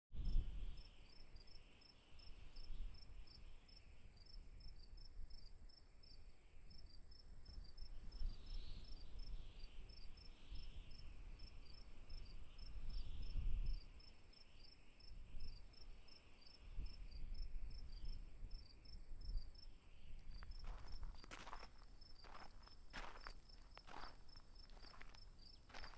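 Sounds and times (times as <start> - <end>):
crickets chirping: 0.2 - 25.9
high-pitched insect trill: 7.5 - 25.9.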